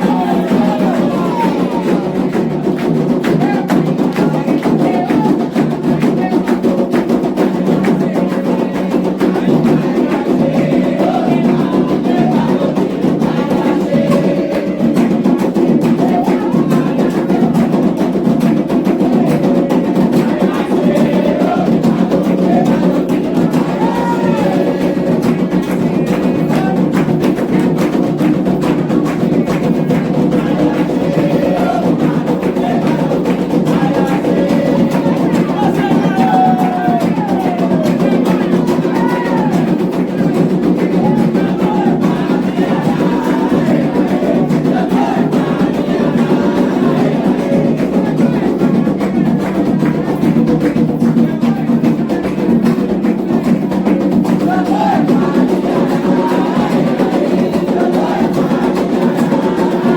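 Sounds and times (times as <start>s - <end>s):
fast hand drumming: 0.0s - 59.9s
voices singing a chant: 0.0s - 59.9s.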